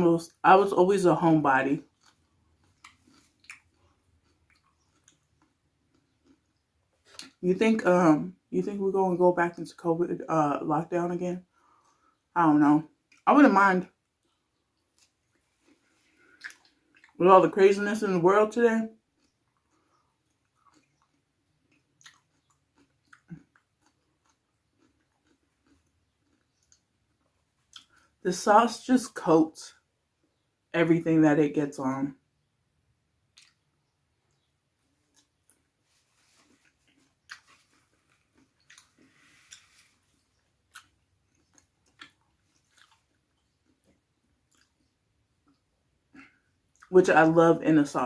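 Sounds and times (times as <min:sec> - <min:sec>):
person chewing food: 0:01.8 - 0:07.4, 0:11.6 - 0:12.3, 0:14.0 - 0:17.2, 0:19.0 - 0:28.2, 0:33.3 - 0:46.9
wet mouth clicks and smacks: 0:16.3 - 0:17.2, 0:19.2 - 0:24.4, 0:33.3 - 0:33.6.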